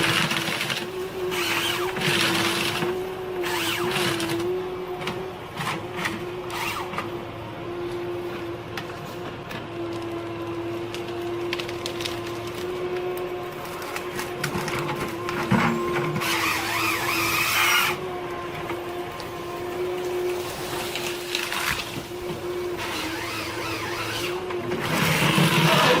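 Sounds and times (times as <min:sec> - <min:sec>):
heavy machinery humming: 0:00.0 - 0:26.0
wavering whine: 0:12.3 - 0:26.0.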